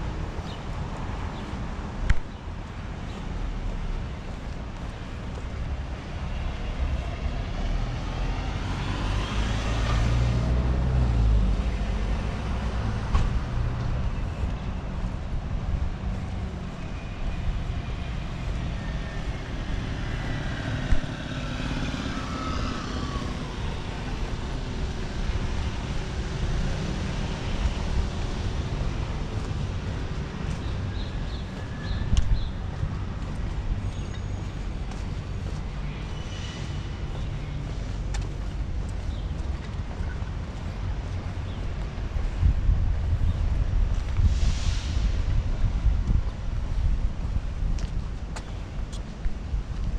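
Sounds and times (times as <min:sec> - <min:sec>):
vehicles passing: 0:00.0 - 0:49.9
heavy vehicle passing: 0:07.7 - 0:31.9.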